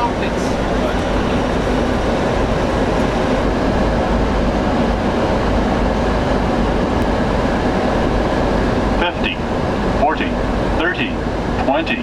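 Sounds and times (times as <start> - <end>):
air rushing past cockpit: 0.0 - 11.7
jet engines running: 0.0 - 12.0.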